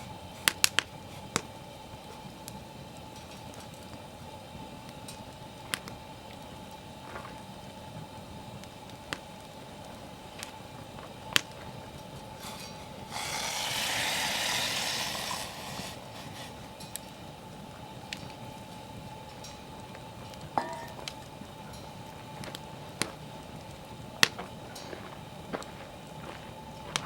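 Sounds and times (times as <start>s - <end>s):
campfire burning: 0.0s - 27.0s
fire popping: 0.0s - 27.0s
loud rushing hiss: 10.6s - 19.2s.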